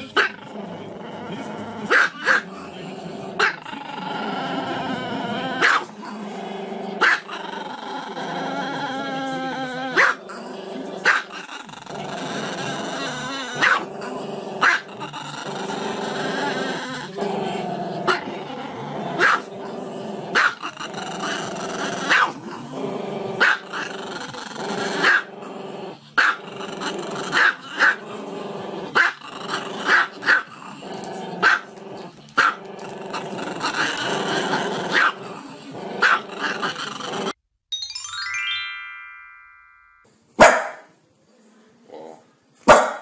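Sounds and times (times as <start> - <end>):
dog growling: 0.0 - 37.4, 41.9 - 42.3
dog barking: 1.9 - 2.4, 5.6 - 5.9, 7.0 - 7.3, 10.0 - 10.2, 11.0 - 11.3, 13.6 - 13.9, 14.6 - 14.9, 19.2 - 19.5, 20.4 - 20.6, 22.1 - 22.4, 23.4 - 23.6, 25.0 - 25.3, 26.2 - 26.4, 29.9 - 30.5, 31.4 - 31.7, 34.9 - 35.2, 36.0 - 36.2, 40.4 - 40.9, 42.7 - 43.0.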